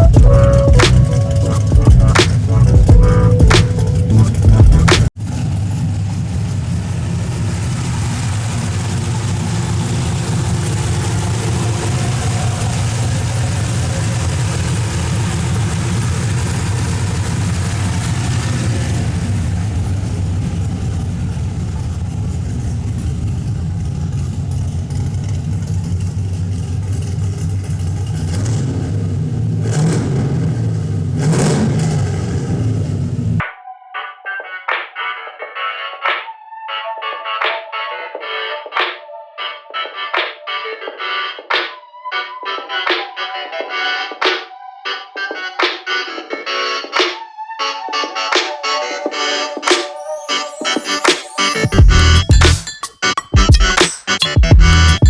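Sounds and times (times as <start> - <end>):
throttle blips: 0.0 - 5.1
car engine idling: 0.0 - 33.4, 51.7 - 55.0.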